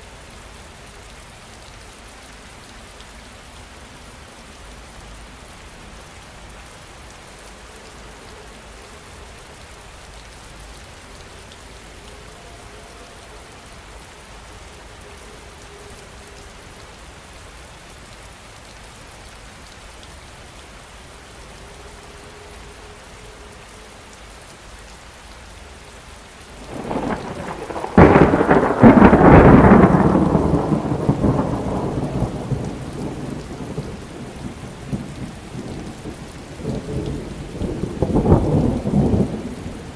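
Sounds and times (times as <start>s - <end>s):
heavy rain falling: 0.0s - 39.9s
thunder crack and rumble: 26.7s - 39.9s.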